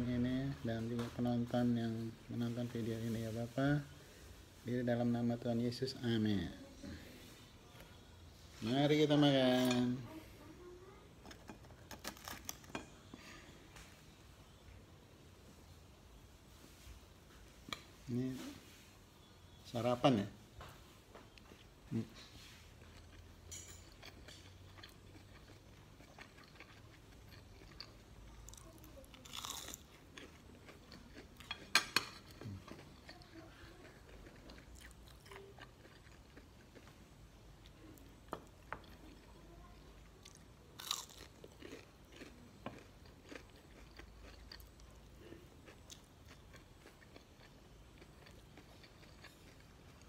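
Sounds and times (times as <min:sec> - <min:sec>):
chewing crispy food: 0:11.4 - 0:13.4, 0:21.3 - 0:50.0.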